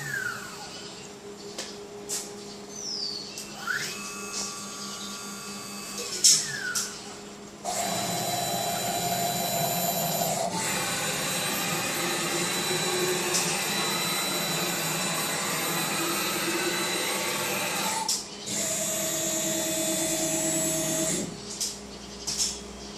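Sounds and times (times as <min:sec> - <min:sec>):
machine motors whining: 0:00.0 - 0:01.2, 0:02.1 - 0:21.8.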